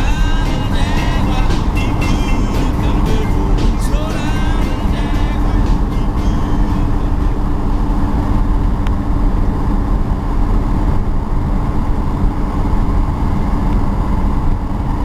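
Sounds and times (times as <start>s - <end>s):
car engine rumble: 0.0s - 15.0s
wind noise from moving car: 7.0s - 15.0s.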